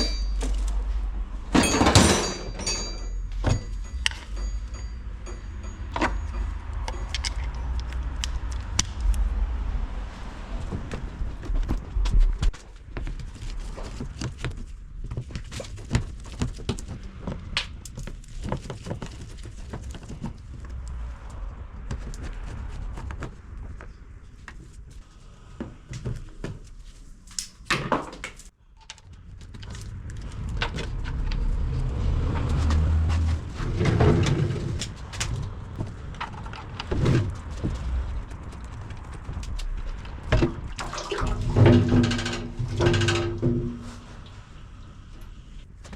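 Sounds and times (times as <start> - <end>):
hand tools clicking and clanking: 0.0 - 9.2, 32.4 - 44.4
low rumble: 0.0 - 12.9, 28.8 - 45.8
scraping: 28.4 - 45.9.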